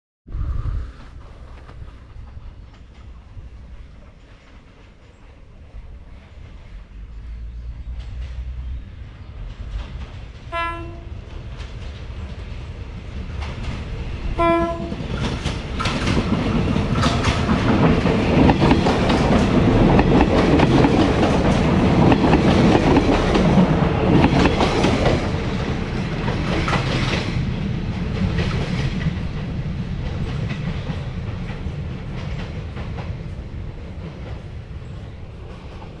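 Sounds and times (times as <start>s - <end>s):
train passing: 0.3s - 36.0s
train horn blasts: 10.5s - 11.2s, 14.4s - 15.1s.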